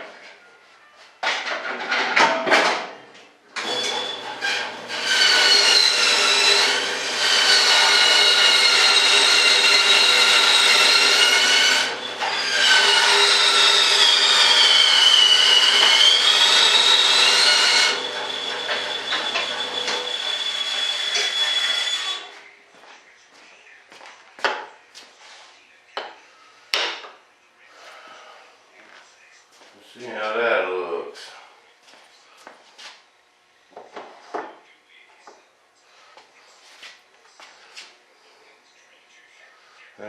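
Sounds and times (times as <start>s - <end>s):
electric power tool whining: 3.6s - 22.3s.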